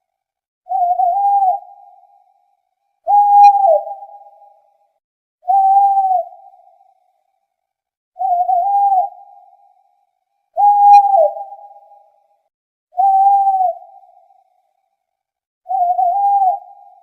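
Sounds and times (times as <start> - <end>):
owl hooting: 0.7 - 2.2, 3.1 - 4.6, 5.4 - 6.9, 8.2 - 9.8, 10.6 - 12.1, 13.0 - 14.6, 15.7 - 17.0.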